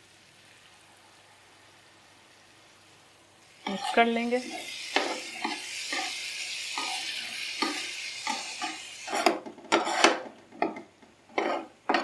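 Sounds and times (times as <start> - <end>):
food sizzling in a pan: 0.0 - 12.0
utensil scraping pan: 3.6 - 12.0.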